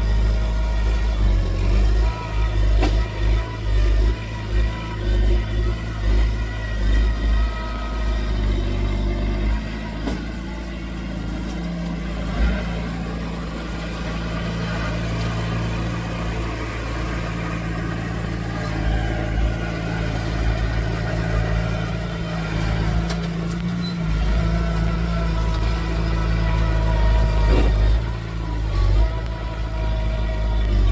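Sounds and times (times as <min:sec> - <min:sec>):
heavy diesel machinery engine: 0:00.0 - 0:30.9.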